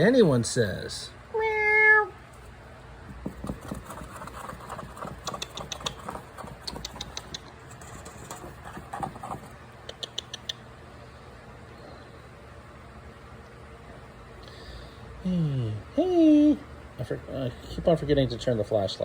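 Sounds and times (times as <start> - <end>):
low steady hum: 0.0 - 19.0
fingers rubbing cat fur: 3.1 - 10.5.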